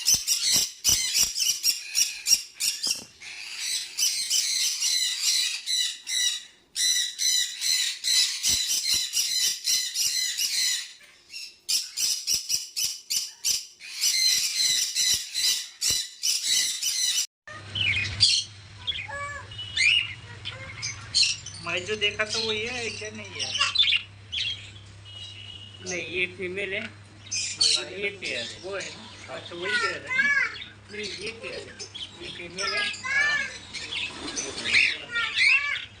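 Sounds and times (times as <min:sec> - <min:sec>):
scattered bird chirps: 0:00.0 - 0:21.7
parrots screeching and chattering: 0:00.0 - 0:26.0, 0:27.2 - 0:36.0.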